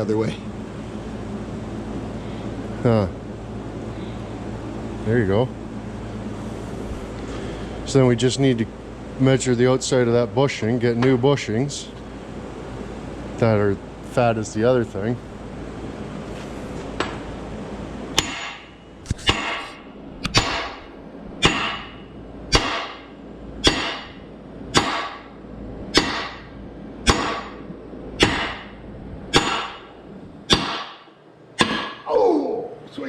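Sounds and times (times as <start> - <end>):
hammer striking metal: 18.2 - 25.3, 25.9 - 27.6, 28.2 - 29.9, 30.5 - 32.1.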